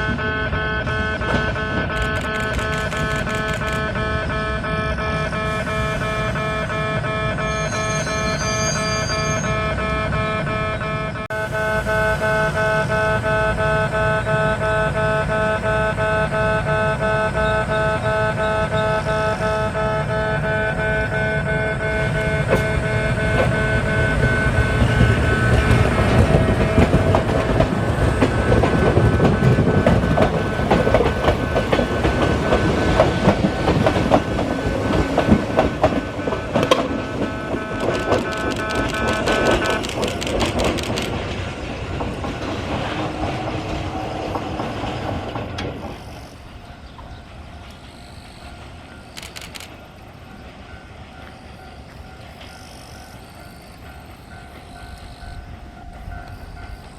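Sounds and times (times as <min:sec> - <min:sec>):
wheels clicking over rail joints: 0:00.0 - 0:11.3, 0:12.0 - 0:56.9
electric train running: 0:00.0 - 0:56.9.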